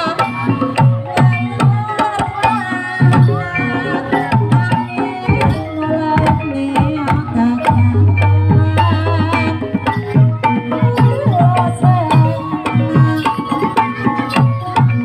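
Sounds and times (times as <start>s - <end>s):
ringing metallophone tones: 0.0s - 15.0s
hand drum strokes: 4.3s - 13.2s.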